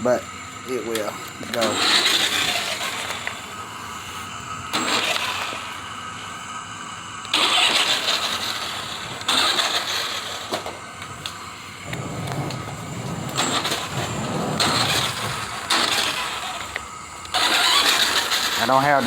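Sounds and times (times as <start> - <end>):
toy engine rev sound effect: 1.5 - 3.6, 4.7 - 5.9, 7.3 - 10.7, 12.0 - 19.0.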